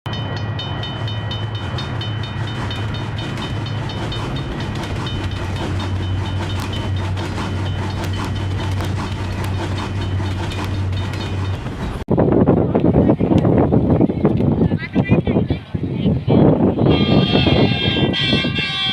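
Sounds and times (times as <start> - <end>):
wheels clicking over rail joints: 0.1 - 12.0
rough rushing noise: 0.1 - 12.7
train engine hum: 0.1 - 18.9.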